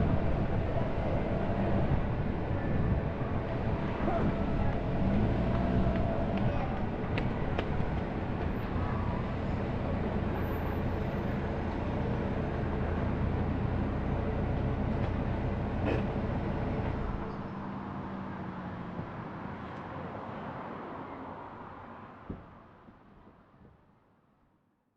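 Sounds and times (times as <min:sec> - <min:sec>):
car engine hum: 0:00.0 - 0:18.5
road noise inside car: 0:00.0 - 0:23.7.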